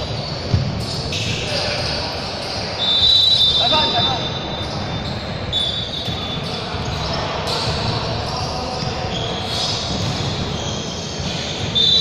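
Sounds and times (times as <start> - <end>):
court noise: 0.0 - 12.0
shoe squeaks: 0.0 - 12.0
basketball bouncing: 0.4 - 1.0, 9.6 - 10.6.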